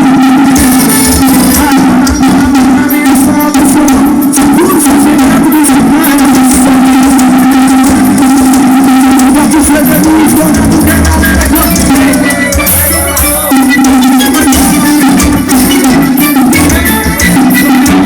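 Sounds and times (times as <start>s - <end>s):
heavy bass: 0.0s - 18.0s
loud music on car sound system: 0.0s - 18.0s.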